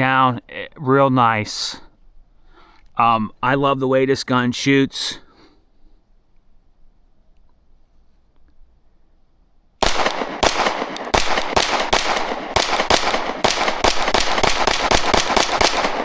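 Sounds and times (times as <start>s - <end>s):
pistol shots in rapid succession: 9.8s - 16.0s.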